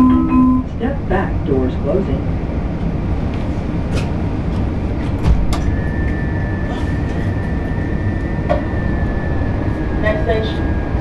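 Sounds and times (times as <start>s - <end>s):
subway car rumbling: 0.0s - 11.0s
high whine: 4.3s - 11.0s.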